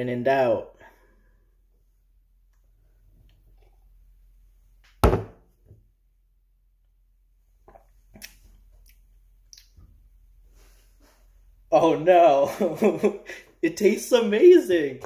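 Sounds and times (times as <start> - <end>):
thump: 5.0 - 5.4
sipping and swallowing: 7.6 - 9.8.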